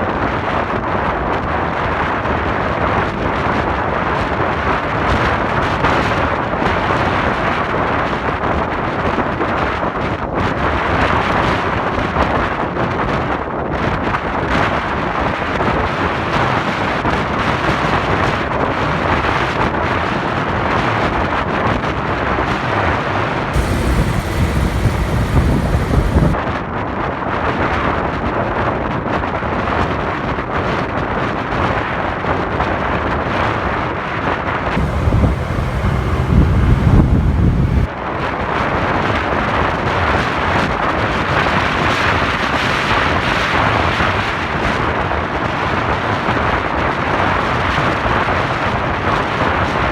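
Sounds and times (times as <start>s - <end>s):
low wind buffeting: 23.6s - 26.4s, 34.8s - 37.9s
road and traffic noise: 23.6s - 26.4s, 34.8s - 37.9s
wind rushing over microphone: 23.6s - 26.4s, 34.8s - 37.9s.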